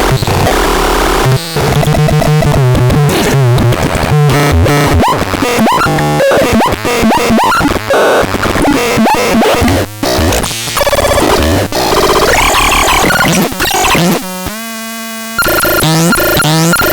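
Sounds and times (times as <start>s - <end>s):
synthesizer bleeping tones: 10.8s - 14.2s, 15.4s - 16.9s.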